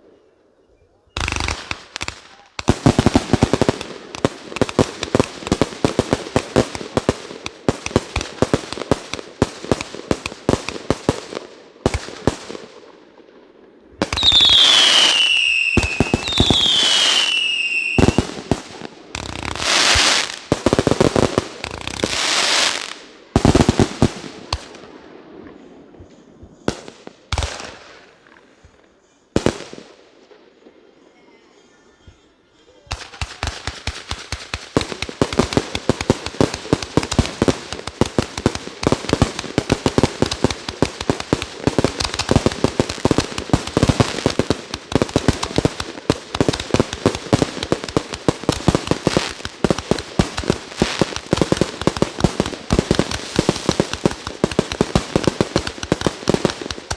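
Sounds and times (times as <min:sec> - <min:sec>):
fireworks reports: 0:00.0 - 0:56.9
fireworks hissing bursts: 0:01.2 - 0:12.9, 0:13.9 - 0:30.8, 0:31.6 - 0:56.9
firework bangs: 0:01.2 - 0:30.8, 0:32.8 - 0:56.9
firework whistles: 0:14.1 - 0:18.4.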